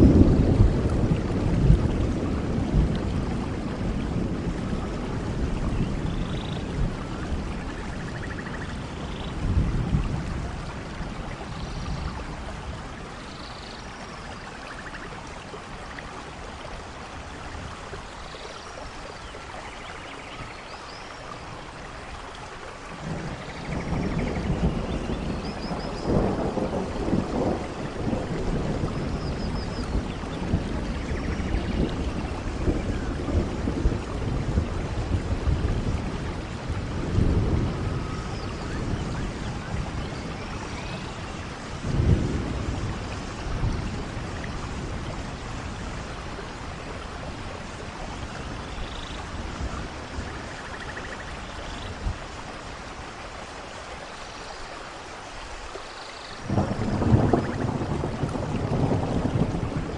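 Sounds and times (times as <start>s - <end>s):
low rumble of thunder: 0.0s - 53.6s, 56.3s - 59.9s
steady rain falling: 0.0s - 59.9s.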